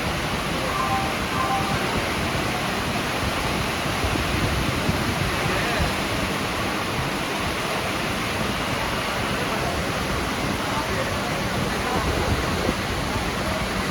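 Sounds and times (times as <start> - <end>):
heavy rain falling: 0.0 - 13.9.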